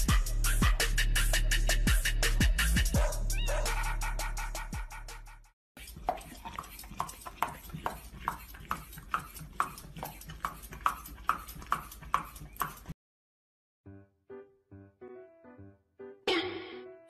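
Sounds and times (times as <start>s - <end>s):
dog licking: 5.8s - 12.9s.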